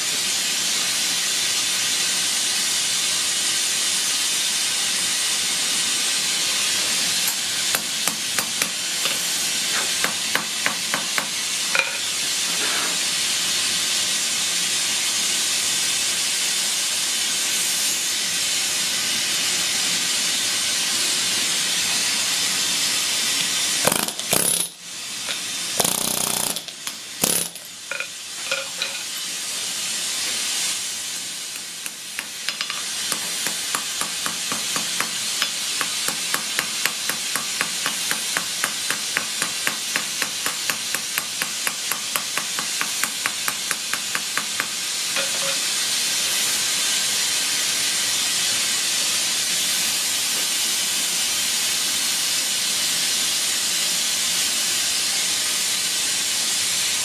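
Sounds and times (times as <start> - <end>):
pneumatic air hammer rattling: 23.5 - 29.3, 31.5 - 45.8.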